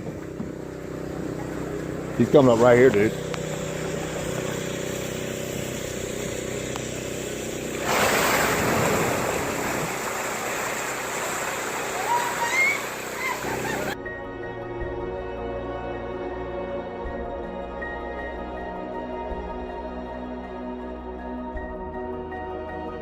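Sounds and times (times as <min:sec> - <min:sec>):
steady motor hum: 0:00.0 - 0:14.0
large splash of water: 0:07.7 - 0:14.0
short rising calls: 0:07.8 - 0:14.0.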